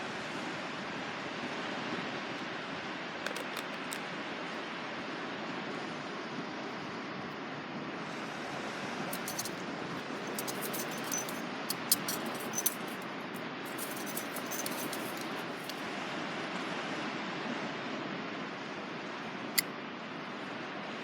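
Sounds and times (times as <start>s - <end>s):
small metal pieces clinking: 3.3s - 4.0s, 9.1s - 9.6s, 10.2s - 13.0s, 13.7s - 15.8s.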